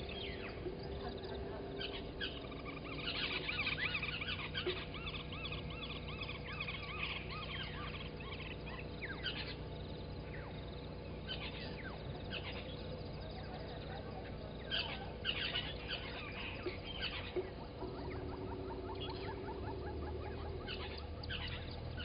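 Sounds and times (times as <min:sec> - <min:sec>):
birds chirping and whistling: 0:00.0 - 0:22.0
steady low hum: 0:00.0 - 0:22.0.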